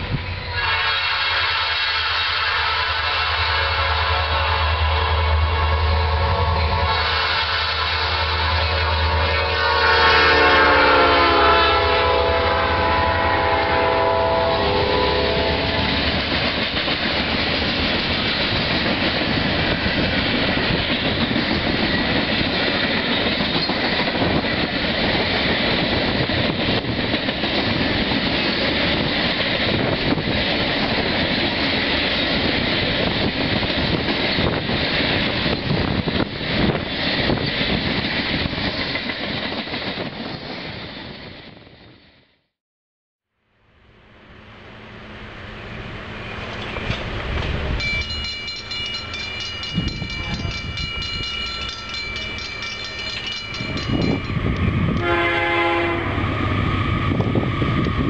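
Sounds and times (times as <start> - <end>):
locomotive air horn: 0.5 - 16.0, 55.0 - 56.2
train wheels rolling and clattering: 15.6 - 42.0, 45.7 - 55.1
locomotive engines rumbling: 44.2 - 58.0.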